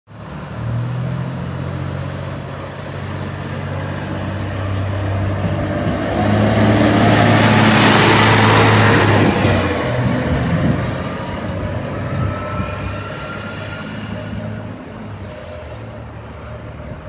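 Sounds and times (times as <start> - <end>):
railcar diesel engine humming: 0.1 - 17.0.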